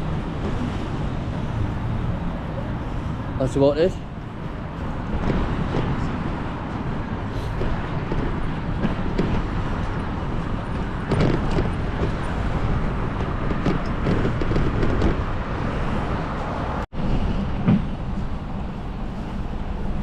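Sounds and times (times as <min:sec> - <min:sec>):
bike road noise: 0:00.0 - 0:20.0
wind buffeting microphone: 0:04.0 - 0:20.0
bike knocks and rattles: 0:07.6 - 0:15.9.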